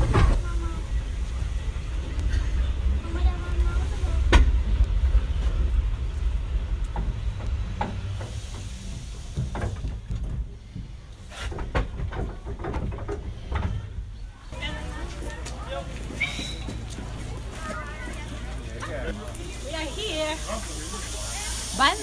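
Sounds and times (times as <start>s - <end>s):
train carriage rumbling on rails: 0.0s - 22.0s.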